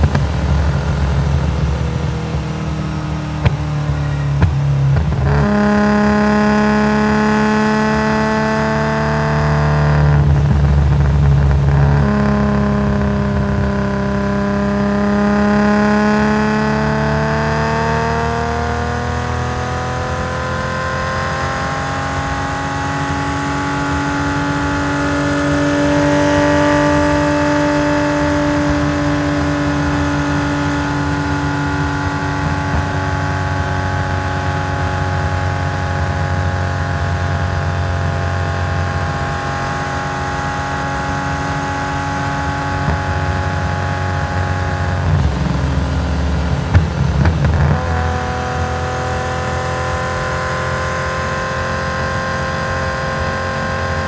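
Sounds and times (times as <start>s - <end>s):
exhaust cracks and pops: 0.0s - 5.5s, 42.5s - 49.3s
car engine running at moderate revs: 0.0s - 54.0s.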